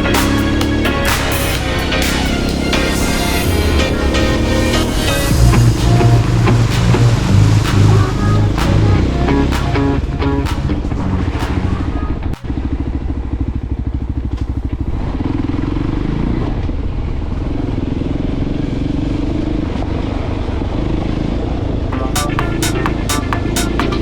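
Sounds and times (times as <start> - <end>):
motorcycle engine throbbing: 0.0 - 16.2, 22.0 - 24.0.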